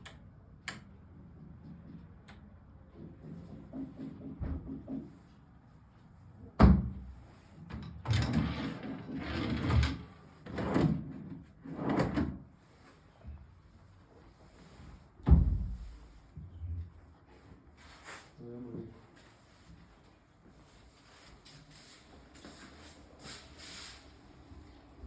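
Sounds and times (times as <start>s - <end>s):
drawers sliding: 8.1s - 12.4s.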